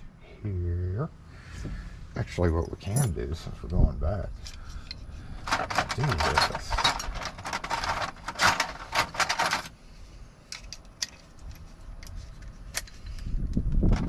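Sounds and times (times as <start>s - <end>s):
metal keys jangling: 2.8s - 3.2s.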